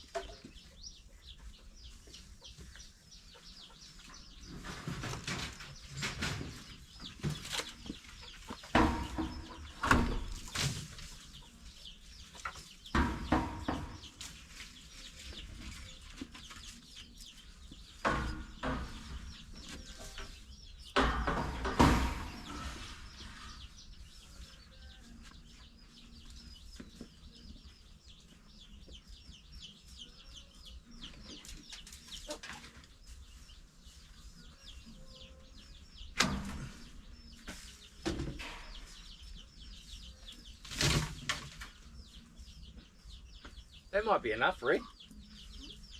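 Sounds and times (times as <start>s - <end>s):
chickens clucking: 0.0s - 45.9s
sharp knocks and clatters: 3.6s - 11.5s, 12.3s - 14.4s, 17.9s - 23.2s.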